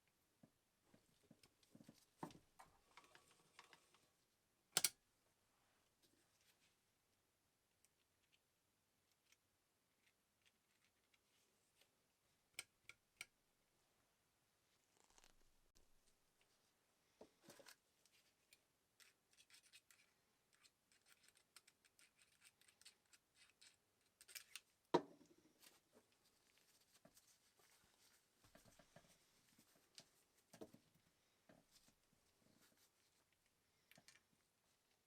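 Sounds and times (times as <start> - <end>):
faint clicks and scraping of tools: 1.0 - 4.2, 17.4 - 24.8.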